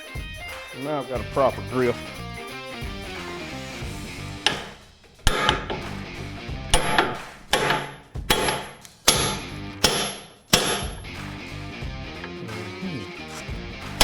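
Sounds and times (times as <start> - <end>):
hammer striking steel punch: 4.4 - 6.0, 6.7 - 11.2.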